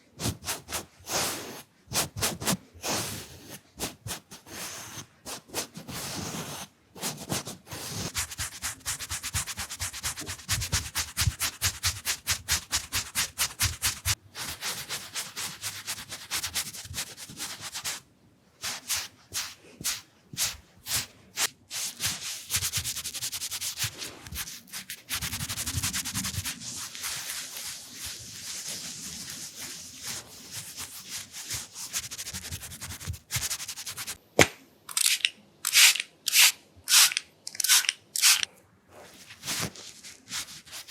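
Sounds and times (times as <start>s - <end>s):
makeup brushes rubbing microphone: 20.4s - 34.2s.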